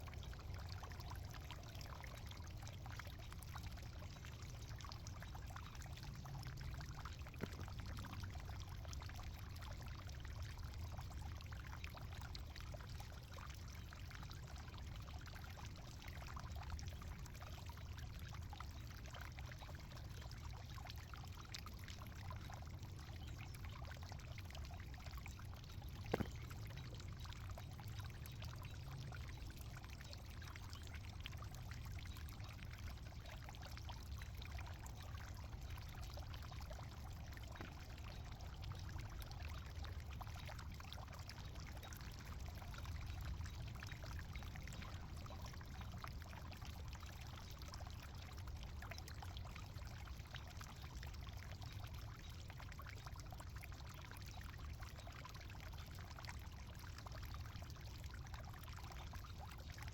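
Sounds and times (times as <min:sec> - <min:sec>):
soil rustling and trickling: 0:25.9 - 0:27.0.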